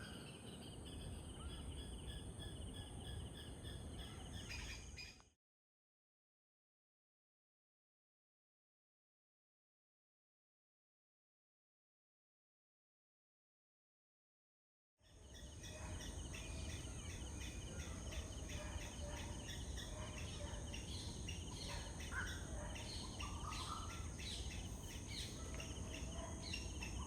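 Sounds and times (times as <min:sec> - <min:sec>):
bird calls and chirps: 0:00.0 - 0:05.4, 0:15.0 - 0:27.0.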